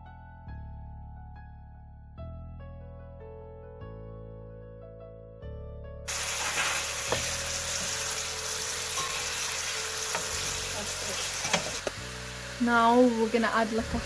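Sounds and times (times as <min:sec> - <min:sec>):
background music: 0:00.0 - 0:14.0
chicken sizzling in a frying pan: 0:06.1 - 0:14.0
wooden spoon knocking on pan: 0:07.0 - 0:08.0.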